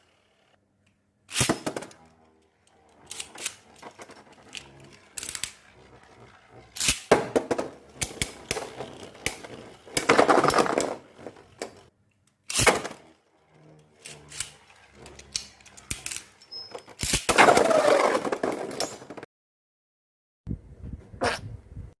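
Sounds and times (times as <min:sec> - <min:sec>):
spinning tops clashing: 0:01.3 - 0:11.9
tops rattling and scraping: 0:01.3 - 0:19.2.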